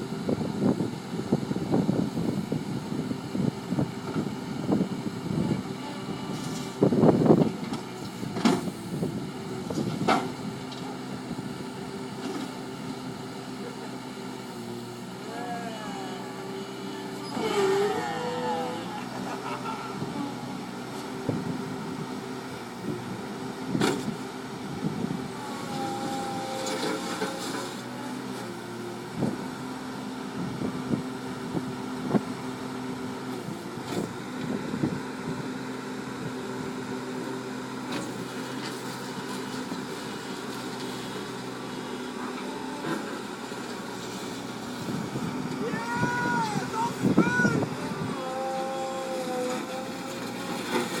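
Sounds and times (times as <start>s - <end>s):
bulldozer engine running: 0.0s - 51.0s.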